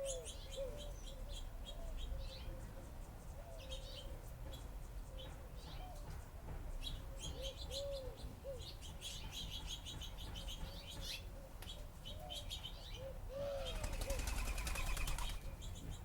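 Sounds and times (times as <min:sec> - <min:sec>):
low cooing calls: 0:00.0 - 0:02.8, 0:07.1 - 0:08.8, 0:11.2 - 0:15.4
small birds chirping: 0:00.0 - 0:16.0.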